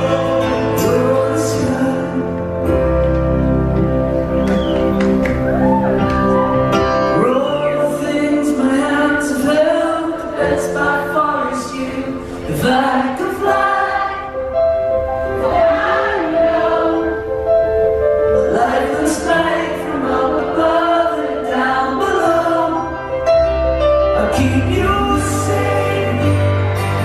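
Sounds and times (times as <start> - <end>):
voices singing together: 0.0 - 2.6, 7.2 - 17.6, 18.4 - 23.1, 24.2 - 27.0
rock band playing: 0.0 - 7.6, 23.2 - 27.0.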